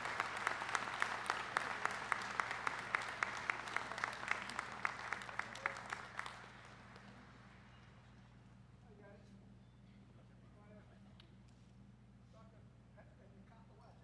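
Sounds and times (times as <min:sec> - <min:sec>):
close hands clapping steadily: 0:00.0 - 0:07.9
crowd applauding: 0:00.0 - 0:07.9.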